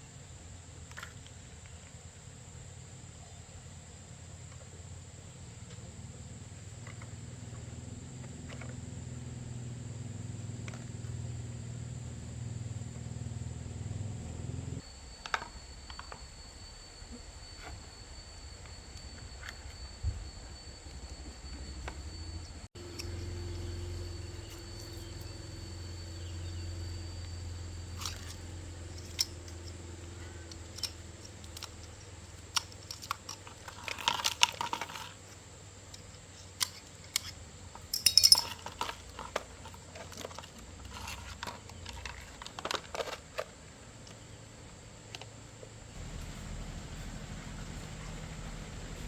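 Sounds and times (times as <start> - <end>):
steady low hum: 0.0 - 42.7, 45.7 - 49.0
tools clinking and rattling: 14.8 - 44.3.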